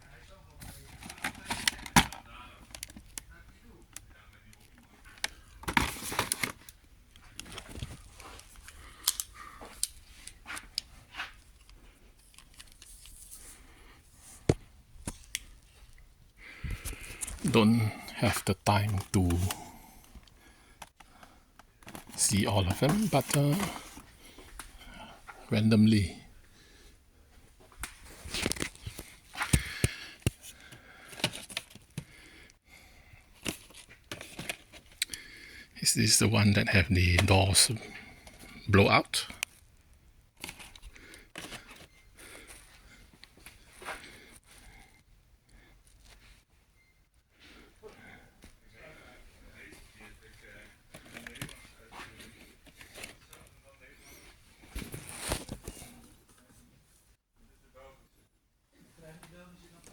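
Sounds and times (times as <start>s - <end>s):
rustling and crinkling: 0.5s - 3.3s, 4.6s - 17.5s, 18.8s - 25.5s, 27.3s - 32.2s, 33.3s - 35.0s, 48.4s - 57.1s.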